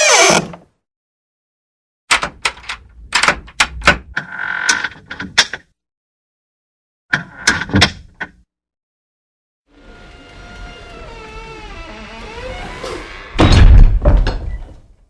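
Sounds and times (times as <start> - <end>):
door hinge squealing: 0.0 - 0.6, 10.0 - 13.7.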